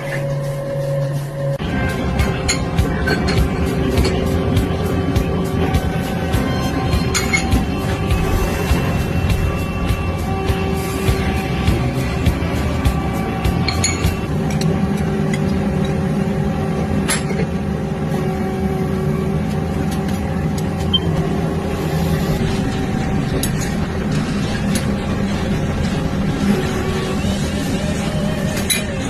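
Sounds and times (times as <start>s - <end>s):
metal lathe humming: 1.4s - 29.0s.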